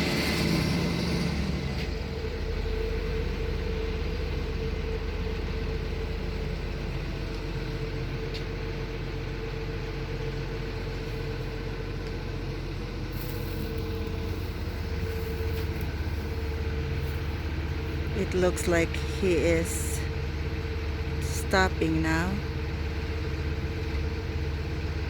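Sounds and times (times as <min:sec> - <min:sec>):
excavator diesel engine running: 0:00.0 - 0:25.0
mid-pitched whine: 0:13.2 - 0:22.5.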